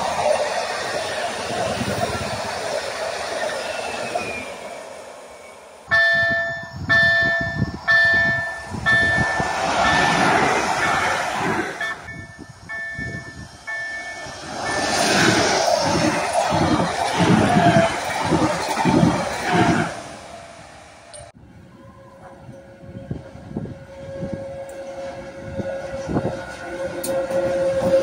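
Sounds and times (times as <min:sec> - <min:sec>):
train rumbling past: 0:00.0 - 0:28.0
electronic warning tone: 0:05.9 - 0:11.0.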